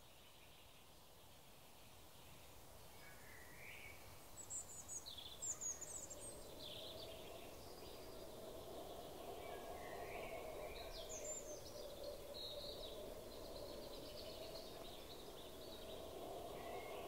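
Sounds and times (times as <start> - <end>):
outdoor background noise: 0.0 - 17.0
small birds chirping and warbling: 4.4 - 17.0.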